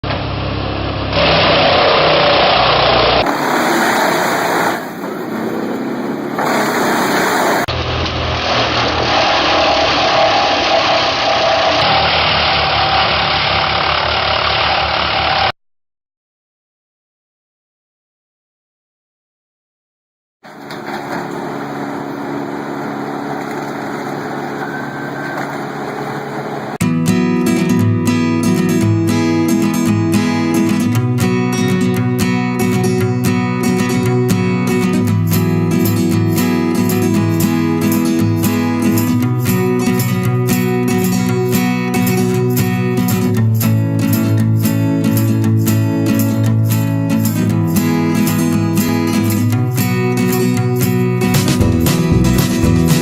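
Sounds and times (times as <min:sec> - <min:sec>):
wood chipper engines running: 0:00.0 - 0:15.5, 0:20.5 - 0:26.8.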